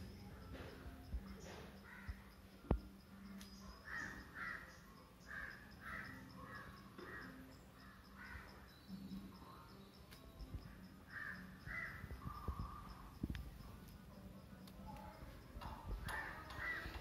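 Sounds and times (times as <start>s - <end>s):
bird cawing: 1.8s - 2.3s, 3.8s - 8.6s, 11.1s - 12.8s, 16.1s - 17.0s.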